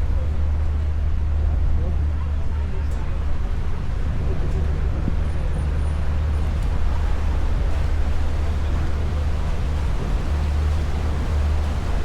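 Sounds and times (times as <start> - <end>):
boat engine rumble: 0.0 - 12.0
wind: 0.0 - 12.0
water noise: 3.4 - 12.0.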